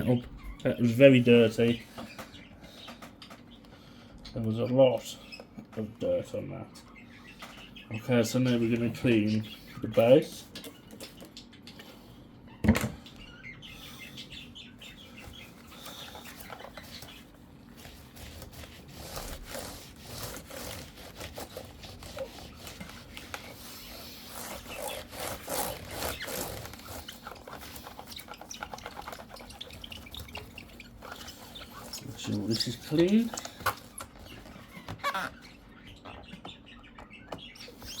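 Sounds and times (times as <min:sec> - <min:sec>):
rubbing plastic laptop base: 0:15.2 - 0:35.4.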